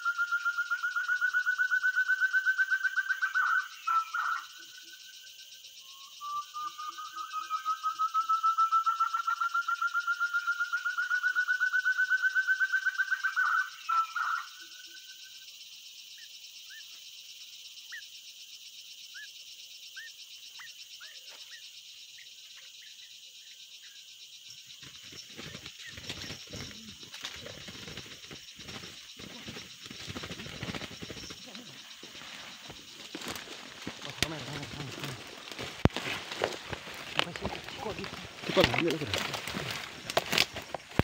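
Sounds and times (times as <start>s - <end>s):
high insect buzz: 13.5s - 41.0s
rustles and knocks in undergrowth: 24.8s - 41.0s.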